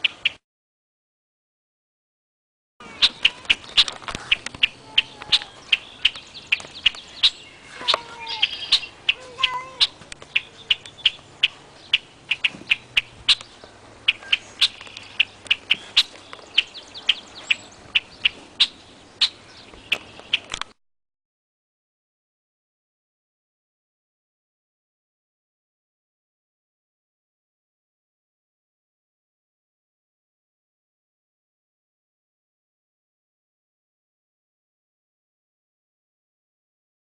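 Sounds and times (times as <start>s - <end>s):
footsteps crunching on a path: 2.8s - 11.6s, 12.4s - 18.6s
short squeaky calls: 2.8s - 20.6s.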